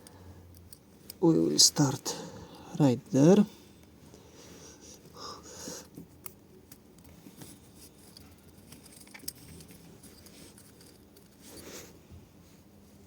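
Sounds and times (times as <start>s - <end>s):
light metallic clicks and scrapes: 5.9s - 11.9s.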